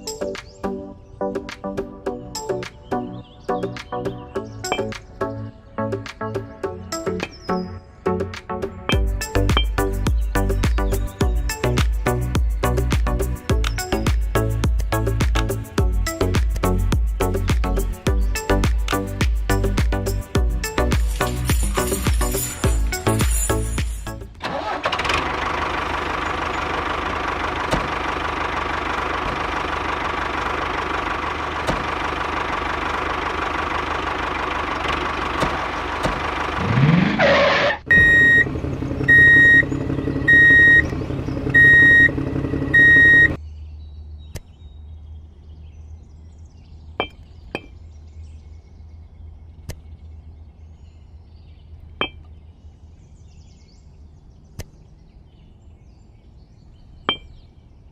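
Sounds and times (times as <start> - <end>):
vehicle engine running: 4.6 - 5.4, 8.8 - 43.4
low hum: 8.9 - 16.8, 25.2 - 55.8
sharp clicks: 13.5 - 13.9
high reversing alarm beeps: 37.9 - 38.5, 39.1 - 39.7, 40.3 - 40.9, 41.6 - 43.4.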